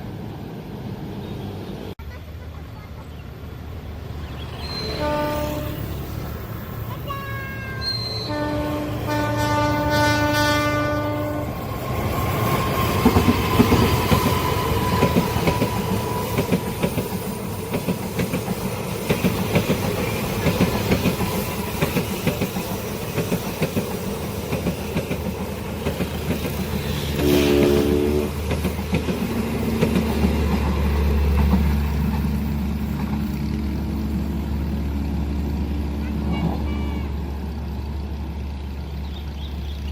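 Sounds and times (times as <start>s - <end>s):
train horn blast: 4.8s - 6.1s, 7.1s - 11.7s, 26.9s - 28.4s, 35.8s - 37.4s
train wheels clattering on rails: 11.6s - 35.2s.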